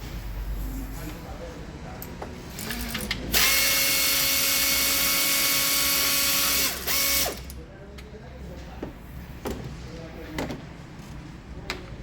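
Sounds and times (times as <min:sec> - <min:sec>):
power tool whining: 0:03.4 - 0:07.5.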